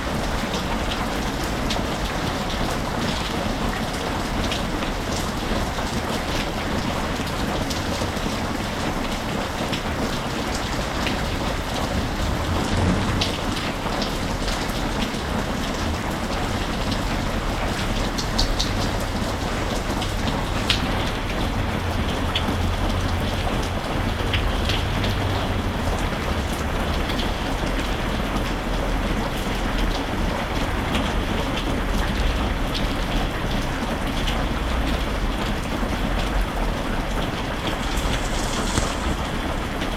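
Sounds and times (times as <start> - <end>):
raindrops ticking on a surface: 0.0 - 39.9
steady rain: 0.0 - 39.9
low rumble: 11.6 - 14.8.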